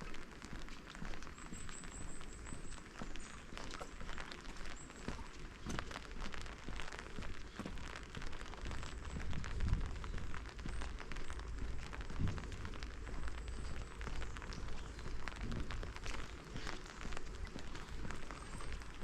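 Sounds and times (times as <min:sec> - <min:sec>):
rain falling: 0:00.0 - 0:19.0
low rumble: 0:06.2 - 0:19.0.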